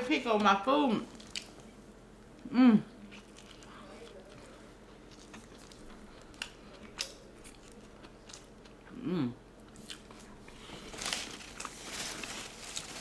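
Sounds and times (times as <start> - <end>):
person chewing food: 3.0 - 13.0
crunchy rustle: 10.2 - 13.0.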